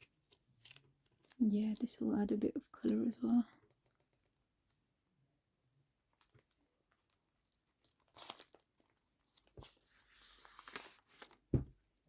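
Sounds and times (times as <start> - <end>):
tearing rustle: 0.0 - 1.5, 7.9 - 8.6
paper and tape crinkling: 0.0 - 3.5, 6.1 - 12.0
soft tap: 11.5 - 11.8.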